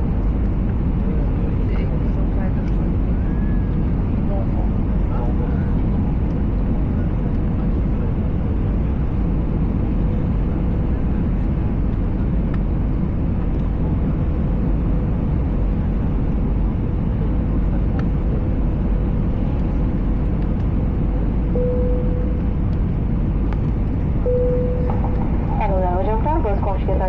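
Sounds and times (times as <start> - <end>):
aircraft cabin airflow and engine: 0.0 - 27.0
faint steady hum: 21.2 - 27.0.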